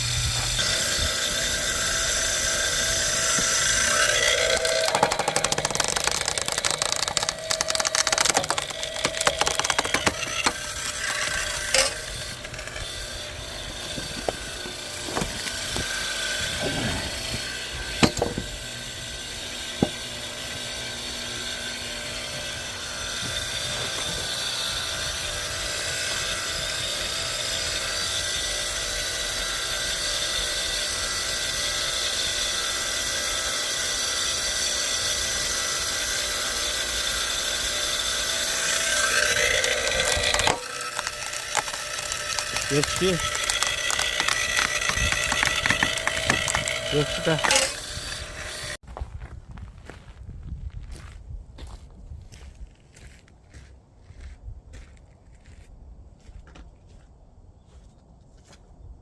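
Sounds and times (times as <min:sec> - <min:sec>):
log splitter mechanical noise: 0:00.0 - 0:49.2
wood cracking: 0:03.0 - 0:18.8, 0:38.2 - 0:48.8.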